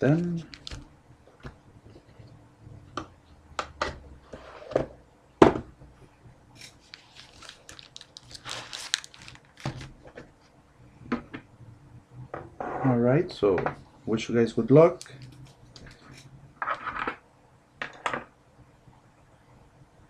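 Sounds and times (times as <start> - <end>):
foil wrappers crinkling: 0.0 - 0.8, 6.6 - 10.0.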